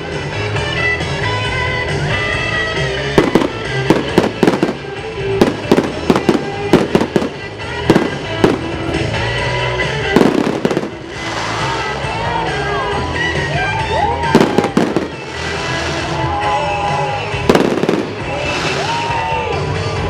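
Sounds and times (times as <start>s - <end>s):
loud music: 0.0s - 20.0s
fireworks bursting with sharp bangs: 3.0s - 12.1s, 14.3s - 16.4s, 17.2s - 19.4s
hiss: 18.3s - 19.3s.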